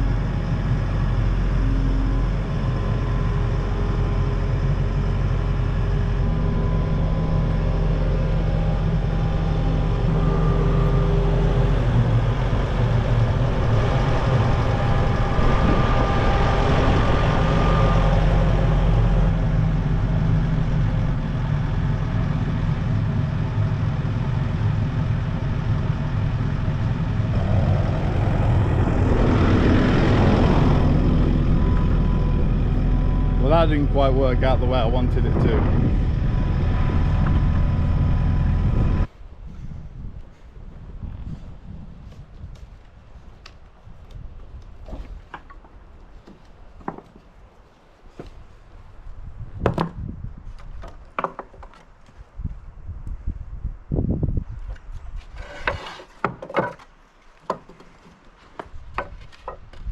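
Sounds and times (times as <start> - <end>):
heavy machine engine running: 0.0 - 39.1
loud rushing: 27.2 - 39.1.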